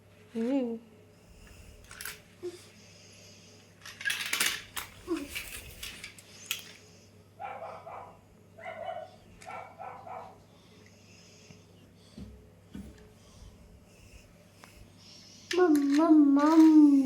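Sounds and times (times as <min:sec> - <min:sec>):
small hard toys clattering: 0:01.8 - 0:02.2, 0:03.8 - 0:06.8, 0:15.5 - 0:17.0.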